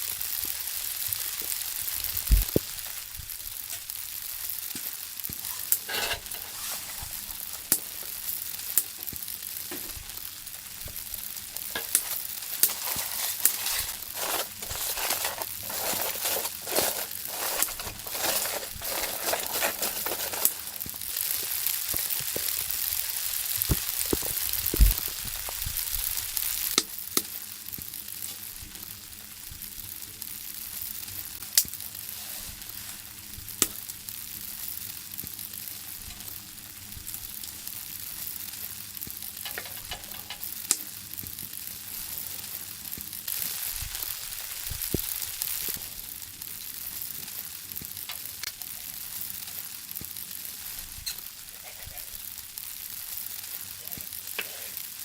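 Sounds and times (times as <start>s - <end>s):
food sizzling in a pan: 0.0s - 55.0s
sharp pops and clicks: 2.2s - 2.8s, 4.7s - 22.8s, 23.6s - 25.7s, 33.6s - 33.8s.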